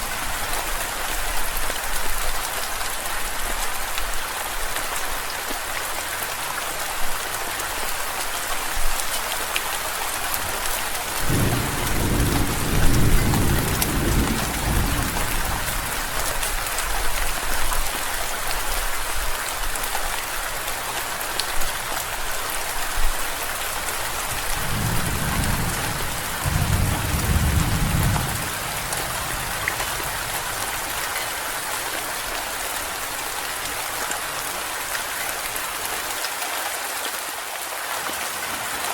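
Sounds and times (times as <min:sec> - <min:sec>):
rain hissing: 0:09.9 - 0:16.7, 0:20.5 - 0:34.9
thunder rolling: 0:11.2 - 0:15.8, 0:24.5 - 0:30.9.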